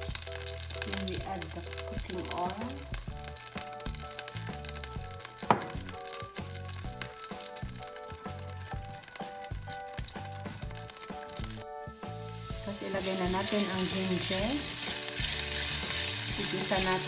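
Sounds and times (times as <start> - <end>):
hot oil sizzling in pot: 0.0 - 17.0
spatula stirring pot: 12.4 - 17.0.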